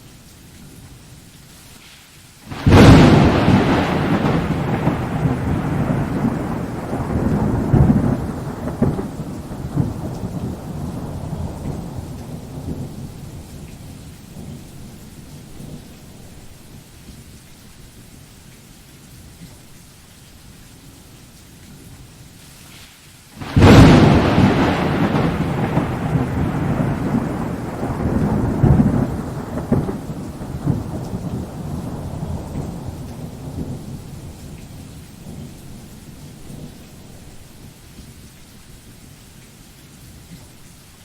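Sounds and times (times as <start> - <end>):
steady rain: 0.0 - 41.0
thunder rumbling: 2.5 - 16.6, 23.4 - 37.8.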